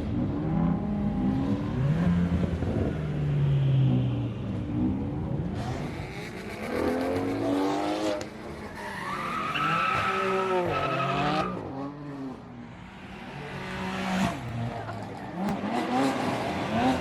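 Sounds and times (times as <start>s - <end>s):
car engine revving hard: 13.4s - 17.0s.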